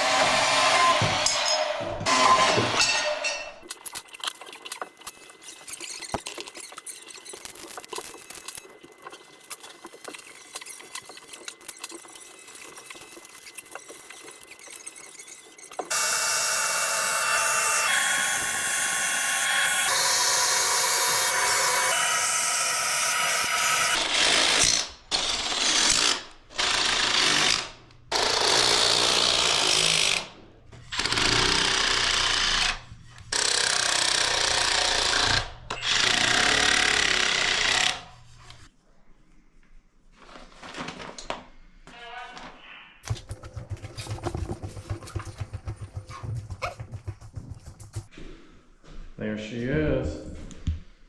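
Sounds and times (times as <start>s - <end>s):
power tool running: 15.8s - 24.2s.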